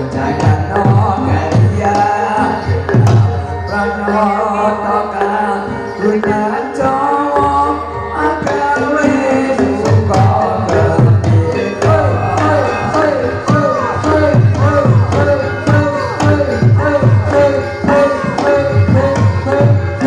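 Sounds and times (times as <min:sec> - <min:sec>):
hand drums beating: 0:00.0 - 0:03.5, 0:08.4 - 0:20.0
gamelan melodic instruments: 0:00.0 - 0:20.0
person singing: 0:00.0 - 0:20.0.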